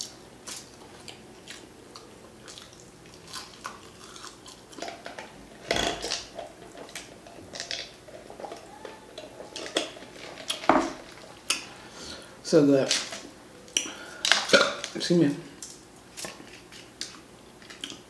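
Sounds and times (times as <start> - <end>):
crunching fried food: 0.0 - 5.4.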